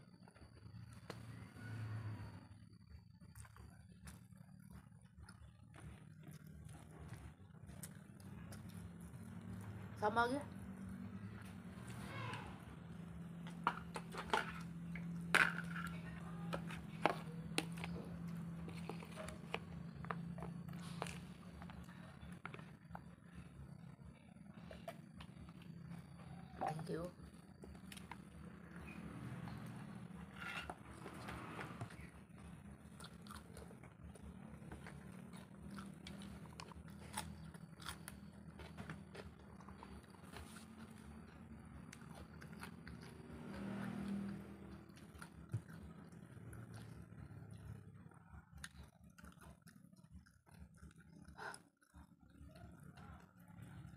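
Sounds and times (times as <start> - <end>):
steady low hum: 0.0 - 53.9
person chewing with wet smacks: 3.2 - 9.8, 15.9 - 23.1, 31.8 - 53.9.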